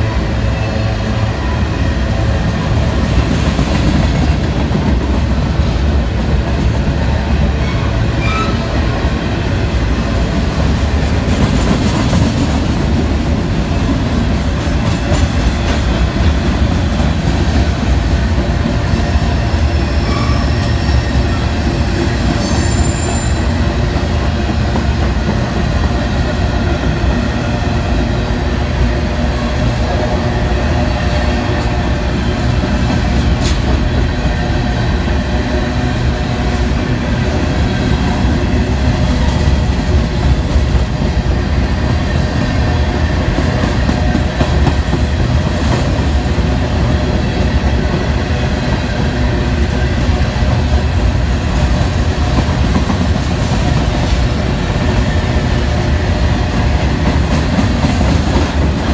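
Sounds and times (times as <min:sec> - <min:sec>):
steel wheels rumbling on rails: 0:00.0 - 0:58.9
high wheel squeal: 0:07.6 - 0:08.7, 0:19.3 - 0:26.2.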